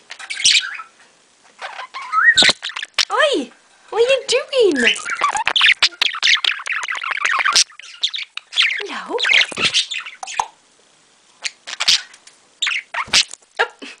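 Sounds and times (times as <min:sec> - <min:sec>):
budgerigar chattering and chirping: 0:01.6 - 0:03.1, 0:04.8 - 0:10.6, 0:11.4 - 0:13.3.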